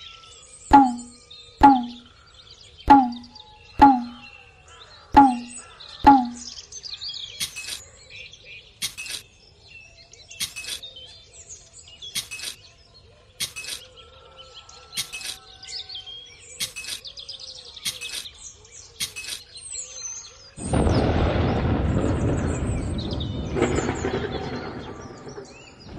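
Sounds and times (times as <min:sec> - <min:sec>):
birds chirping: 0:00.0 - 0:21.2.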